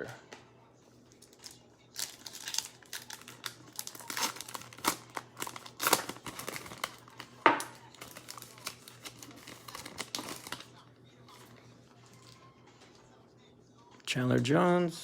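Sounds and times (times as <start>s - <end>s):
plastic wrapper tearing and crinkling: 1.1s - 10.7s.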